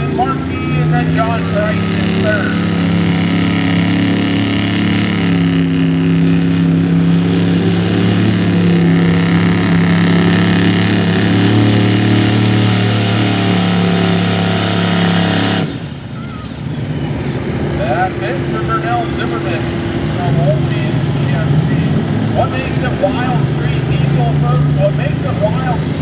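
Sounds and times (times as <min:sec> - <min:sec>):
diesel engine at high revs: 0:00.0 - 0:26.0.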